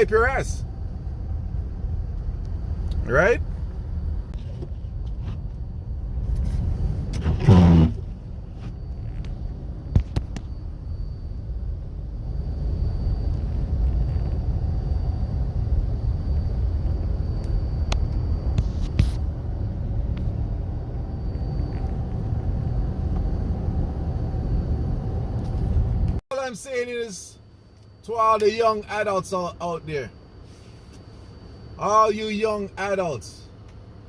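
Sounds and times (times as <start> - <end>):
low vehicle rumble: 0.0 - 26.2.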